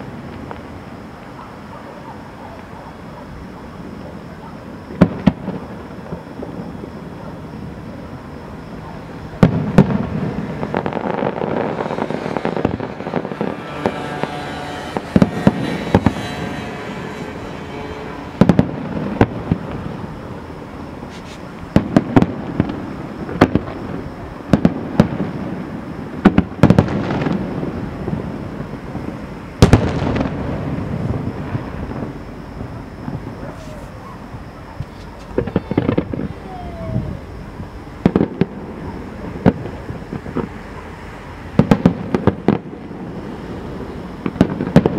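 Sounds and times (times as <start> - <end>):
firework shells bursting: 9.4 - 23.8.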